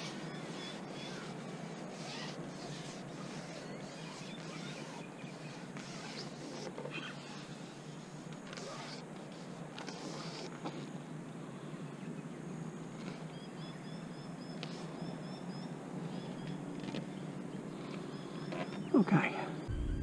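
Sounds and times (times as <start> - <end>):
small bird chirping: 0.0 - 7.5.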